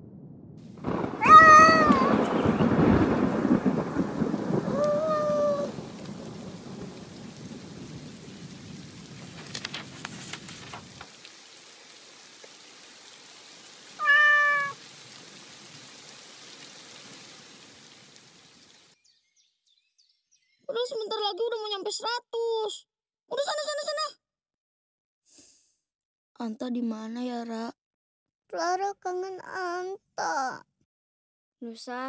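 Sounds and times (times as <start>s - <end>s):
low thunder rumble: 0.0s - 11.0s
rain falling: 0.6s - 19.0s
cat meowing: 1.2s - 2.2s, 14.0s - 14.8s.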